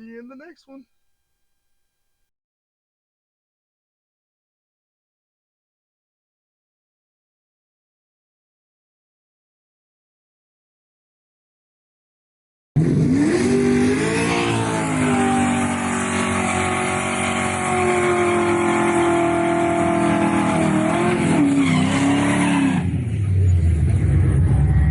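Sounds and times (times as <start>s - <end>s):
car engine revving: 12.8s - 24.9s
low rumble: 23.2s - 24.9s.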